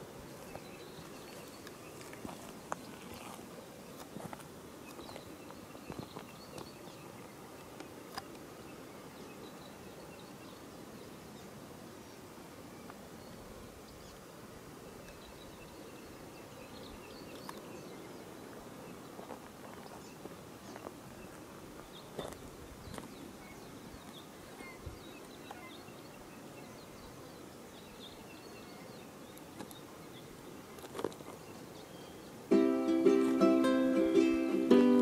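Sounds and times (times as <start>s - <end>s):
ukulele music: 32.5s - 35.0s.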